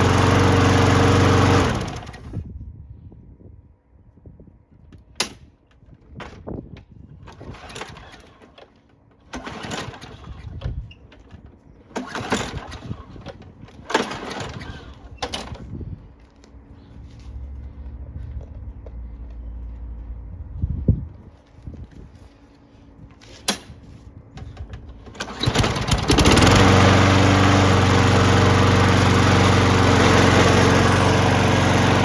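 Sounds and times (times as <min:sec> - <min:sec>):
lawn mower engine cranking: 0:00.0 - 0:02.4, 0:07.2 - 0:16.4, 0:23.2 - 0:32.0
engine humming: 0:12.0 - 0:21.6, 0:24.5 - 0:32.0.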